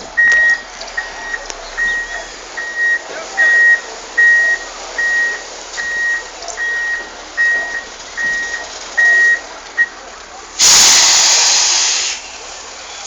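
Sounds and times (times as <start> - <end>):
truck reversing alarm beeping: 0.0 - 10.0
loud hiss: 10.6 - 13.0.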